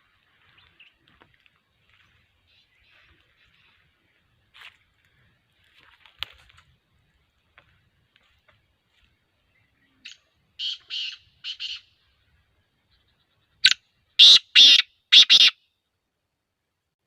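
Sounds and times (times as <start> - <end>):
bird calling with harsh notes: 9.6 - 12.2, 12.8 - 15.7.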